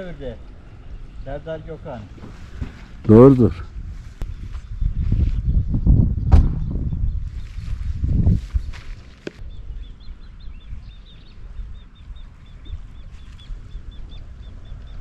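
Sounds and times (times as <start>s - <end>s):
wind rumble on microphone: 2.1s - 15.0s
bird chirping: 8.6s - 15.0s.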